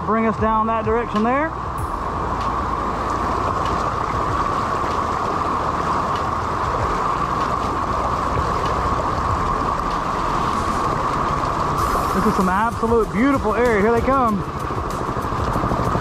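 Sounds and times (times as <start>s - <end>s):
river water rushing: 0.0s - 16.0s
wind buffeting microphone: 0.0s - 16.0s.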